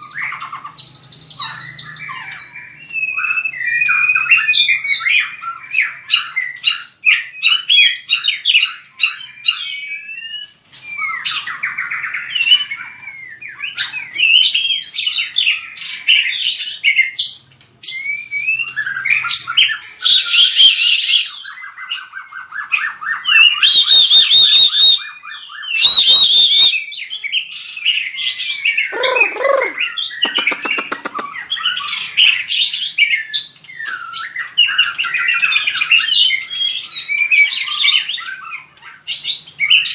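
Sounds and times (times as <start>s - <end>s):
bird whistling song with trills: 0.0s - 39.9s
harsh rasping bird notes: 28.9s - 31.4s.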